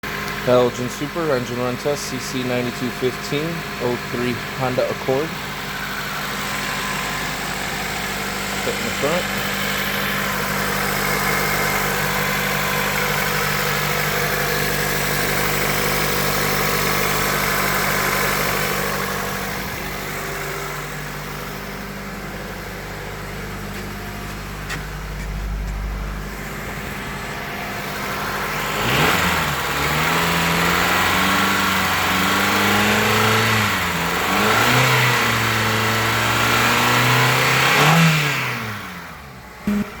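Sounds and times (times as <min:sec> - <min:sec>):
car engine idling and revving: 0:00.0 - 0:40.0.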